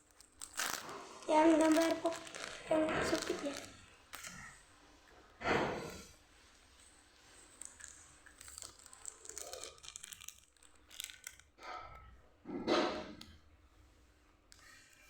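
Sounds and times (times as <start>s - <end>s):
plastic packaging crinkling and tearing: 0.0s - 4.7s, 6.6s - 11.6s.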